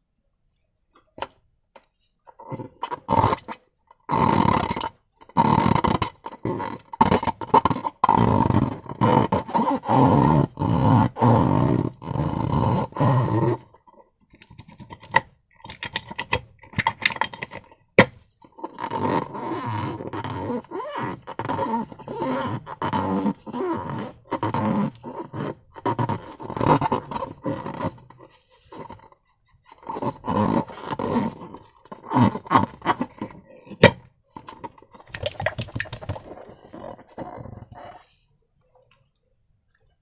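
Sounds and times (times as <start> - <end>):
slime squelching: 33.0 - 38.0.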